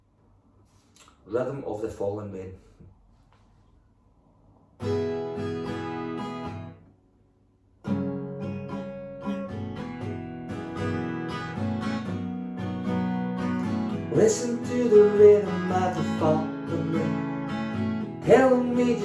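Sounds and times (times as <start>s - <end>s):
acoustic guitar strumming: 4.8s - 6.8s, 7.8s - 19.0s.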